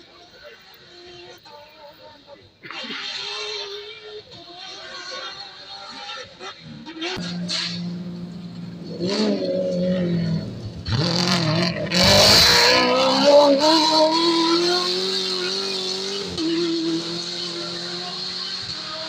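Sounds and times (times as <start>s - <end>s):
off-road racing engine revving: 2.6s - 19.0s.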